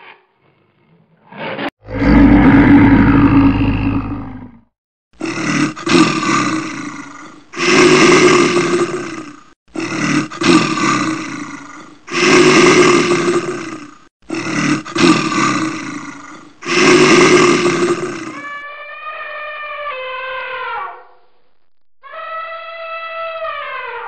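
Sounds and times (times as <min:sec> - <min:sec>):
large animal roaring: 0:00.5 - 0:18.6.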